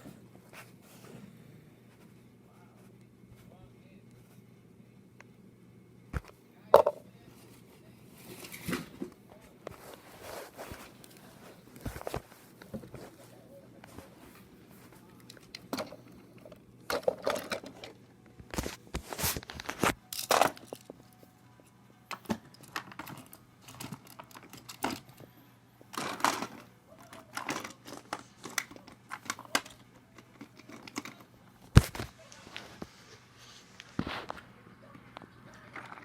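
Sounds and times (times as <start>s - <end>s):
rustling handling noises: 6.2s - 36.0s.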